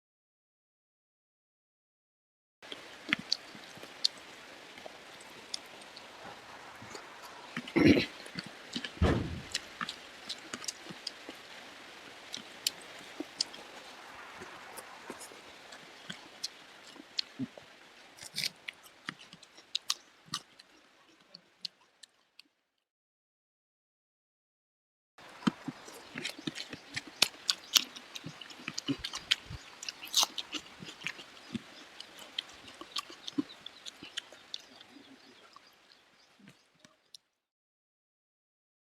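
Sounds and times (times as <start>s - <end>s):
chewing clicks and smacks: 25.3s - 37.0s.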